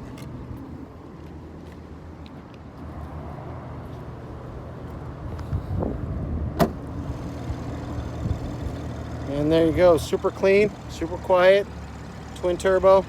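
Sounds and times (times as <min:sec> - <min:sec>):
car engine idling: 0:06.6 - 0:13.0.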